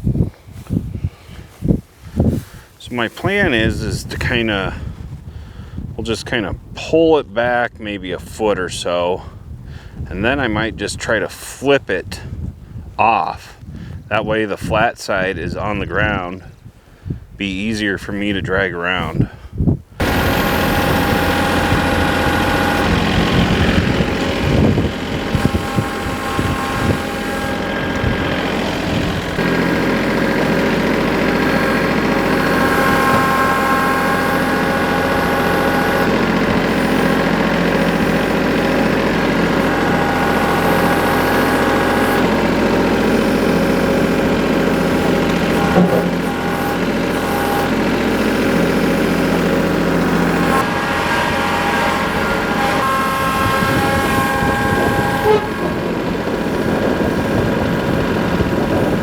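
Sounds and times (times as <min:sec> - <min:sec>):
vehicle engine idling: 0:20.0 - 0:59.0.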